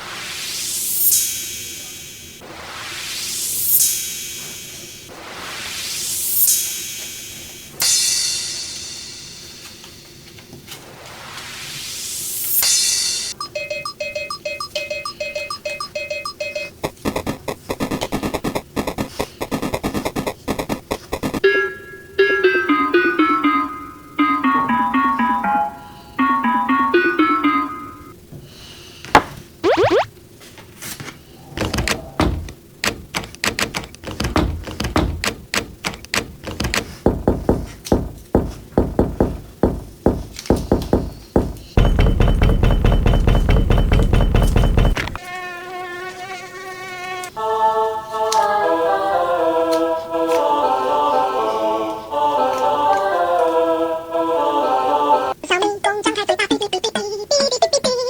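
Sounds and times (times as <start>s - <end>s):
bright tune of falling notes: 21.4s - 28.2s, 29.6s - 30.1s
quick electronic beeping: 29.6s - 30.1s
sharp taps and knocks: 31.6s - 45.2s.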